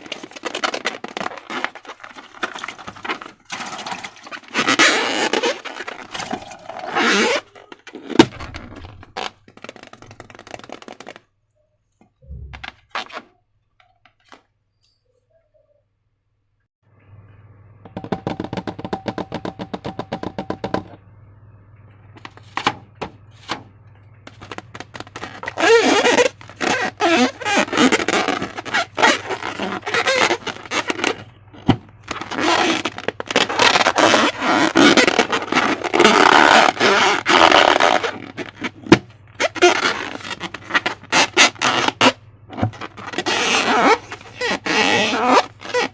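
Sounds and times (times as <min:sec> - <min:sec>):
rubber balloon squeaks: 0:00.0 - 0:11.3, 0:12.3 - 0:13.3, 0:24.3 - 0:45.9
soft low thump: 0:12.2 - 0:12.8.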